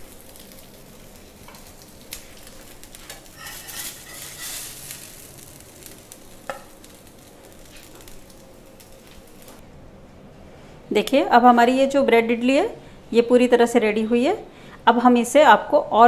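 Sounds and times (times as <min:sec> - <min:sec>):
bread sizzling on a hot pan: 0:00.0 - 0:09.6
spatula scraping under bread: 0:03.4 - 0:04.8.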